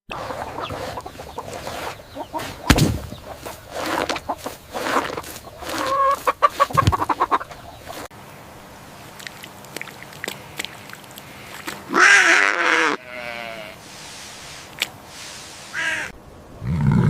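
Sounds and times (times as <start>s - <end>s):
chickens clucking: 0.1s - 8.1s
loud thump: 2.7s - 3.1s.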